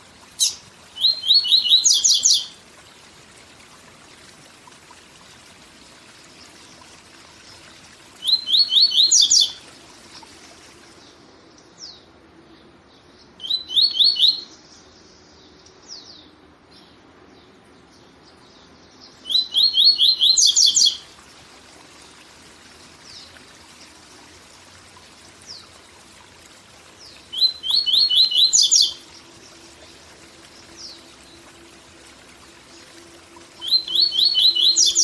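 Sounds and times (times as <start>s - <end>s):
bird song with buzzy phrase: 11.0s - 21.0s, 27.0s - 29.7s, 33.6s - 35.0s.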